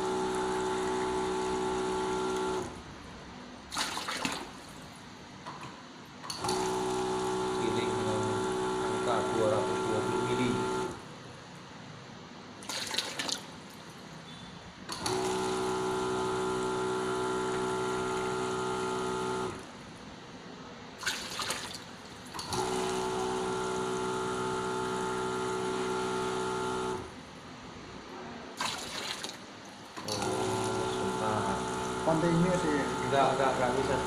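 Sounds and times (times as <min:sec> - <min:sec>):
pump whining: 0:00.0 - 0:02.8, 0:06.3 - 0:11.0, 0:14.2 - 0:19.7, 0:21.0 - 0:27.3, 0:28.5 - 0:34.0.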